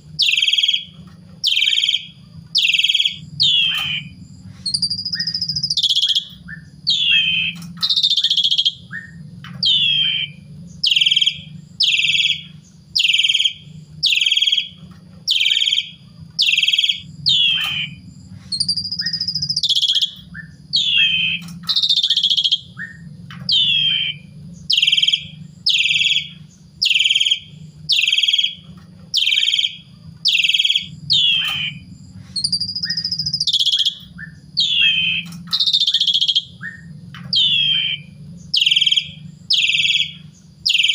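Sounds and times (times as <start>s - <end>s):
low hum: 0.0s - 40.9s
starling whistling song: 0.0s - 40.9s.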